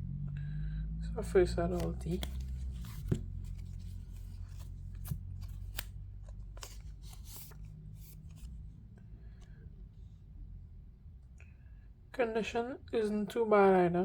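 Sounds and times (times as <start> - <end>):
cards sliding and tapping: 1.8 - 8.6.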